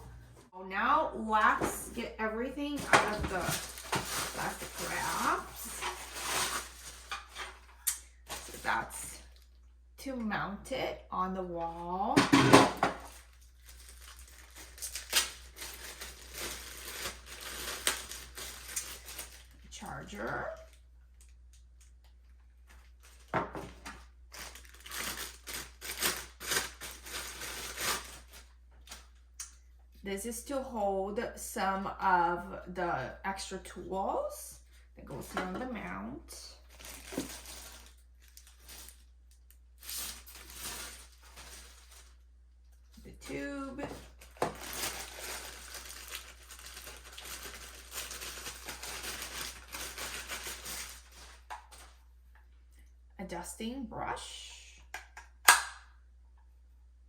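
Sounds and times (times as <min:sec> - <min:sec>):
plastic wrapping crinkling: 0:02.7 - 0:09.6, 0:12.7 - 0:29.3, 0:36.6 - 0:52.5.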